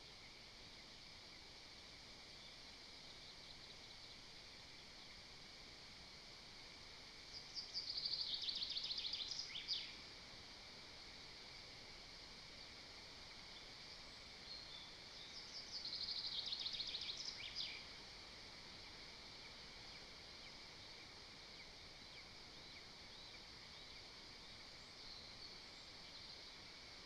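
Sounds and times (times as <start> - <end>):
forest ambience hiss: 0.0 - 27.0
faint bird chirps: 7.3 - 10.0, 14.4 - 17.9.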